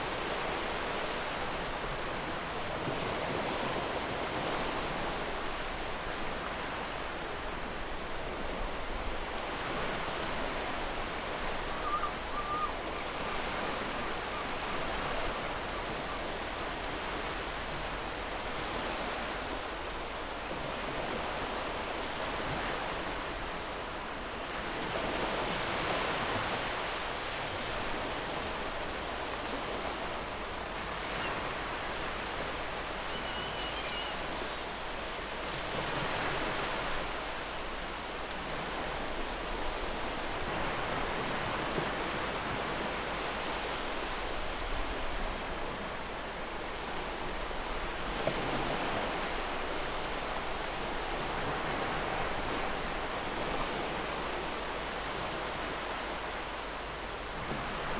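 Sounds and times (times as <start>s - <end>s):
waves washing on shore: 0.0s - 57.9s
faint high chirp: 33.1s - 34.3s.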